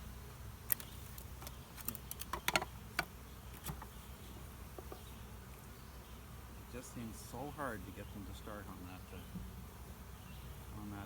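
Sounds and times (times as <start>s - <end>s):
honeybees humming: 0.0s - 11.0s
sharp clicks and knocks: 0.7s - 3.9s.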